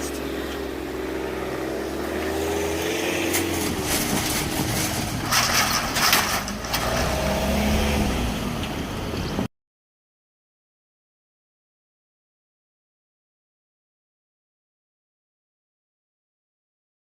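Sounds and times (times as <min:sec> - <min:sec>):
road vehicles passing: 0:00.0 - 0:09.5.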